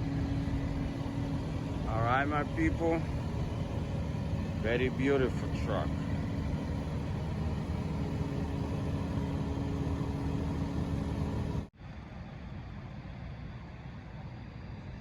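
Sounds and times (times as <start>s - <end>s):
quiet even rumble: 0.0s - 11.7s
vehicle engine idling: 0.0s - 11.7s.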